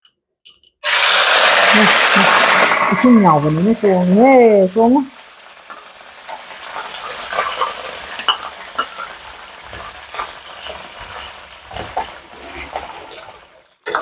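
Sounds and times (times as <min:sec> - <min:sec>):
peanuts frying in hot oil: 0:00.7 - 0:14.0
metal spatula clinking on pan: 0:07.3 - 0:10.3.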